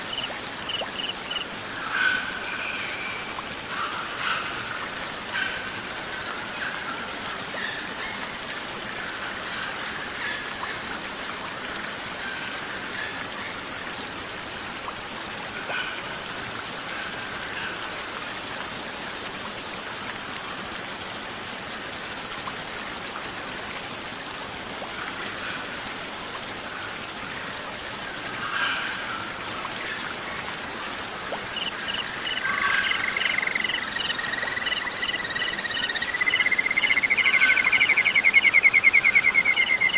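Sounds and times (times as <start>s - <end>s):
cricket chirping: 0.0s - 1.5s, 31.5s - 39.9s
rain hissing: 31.0s - 39.9s
faint bird calls: 31.5s - 39.9s.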